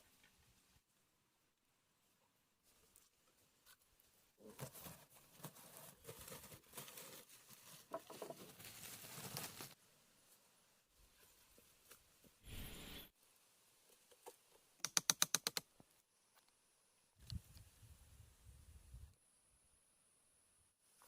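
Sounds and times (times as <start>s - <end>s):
faint rustling and crackling: 2.6s - 12.6s.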